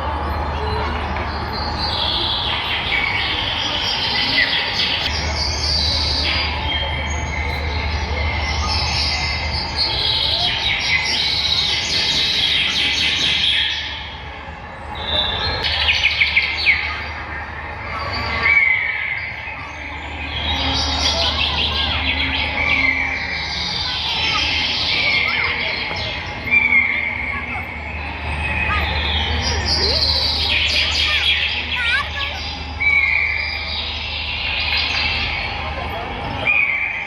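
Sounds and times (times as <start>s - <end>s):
steady low hum: 0.0s - 37.0s
robotic bird chirps and calls: 14.9s - 35.8s, 36.4s - 37.0s.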